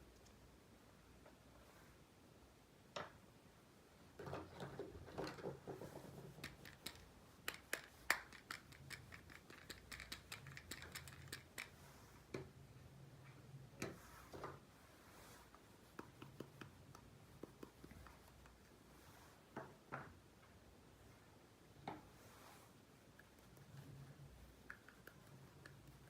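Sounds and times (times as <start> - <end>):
toy pieces clicking and tapping: 6.4 - 11.7.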